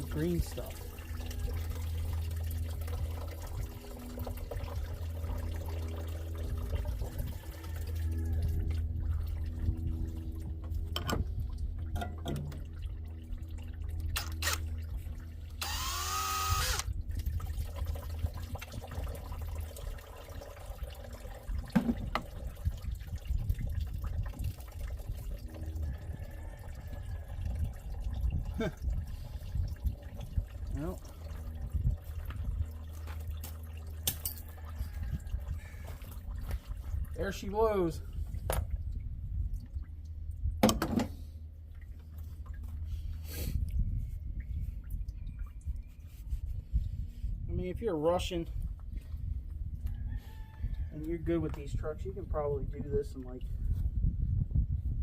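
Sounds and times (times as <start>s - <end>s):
coolant draining and dripping: 0.0s - 55.0s
loud mechanical whir: 15.6s - 16.9s.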